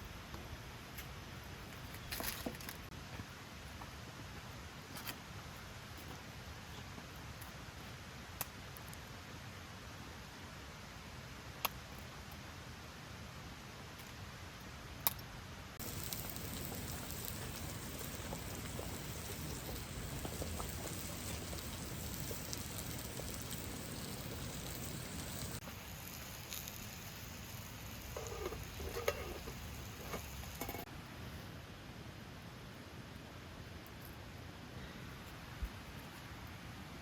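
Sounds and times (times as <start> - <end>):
campfire crackling and hissing: 7.3 - 31.2.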